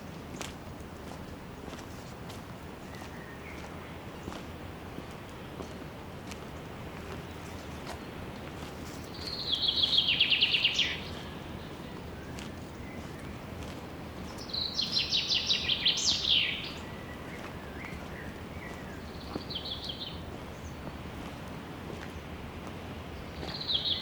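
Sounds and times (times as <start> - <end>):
steady background hiss: 0.0 - 24.0
songbird trilling: 9.0 - 13.4, 14.3 - 20.8.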